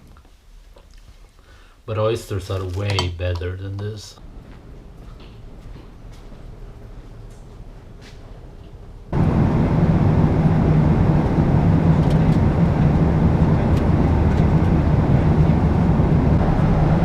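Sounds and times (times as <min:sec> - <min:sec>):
moving vehicle rumble: 0:04.2 - 0:17.0.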